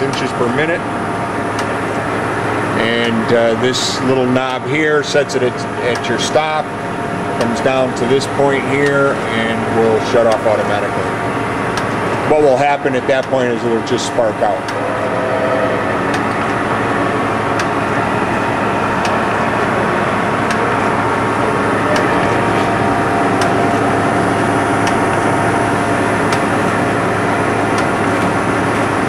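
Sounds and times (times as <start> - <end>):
surface grinder grinding steel: 14.7 - 16.6.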